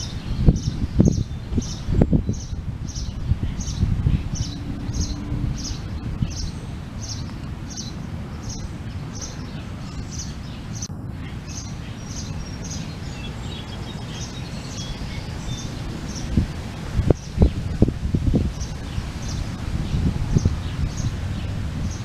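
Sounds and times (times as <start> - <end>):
low rumble: 0.0 - 8.9
other birds chirping: 0.0 - 22.0.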